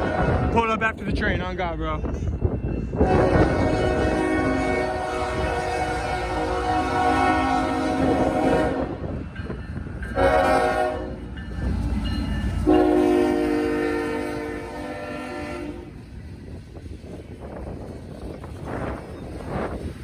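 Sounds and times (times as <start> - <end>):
locomotive horn blasts: 0.0 - 0.5, 3.0 - 9.0, 10.2 - 11.2, 12.6 - 16.0
passing train rumble: 0.0 - 20.0.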